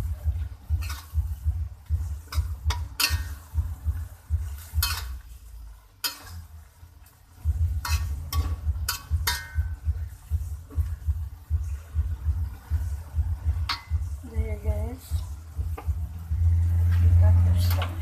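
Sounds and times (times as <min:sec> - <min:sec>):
spatula scraping a pan: 0:00.0 - 0:11.0.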